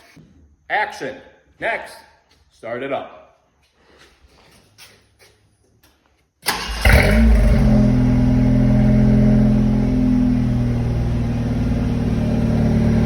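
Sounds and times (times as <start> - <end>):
engine cranking and starting: 6.4 - 8.1
car engine idling: 6.5 - 13.0.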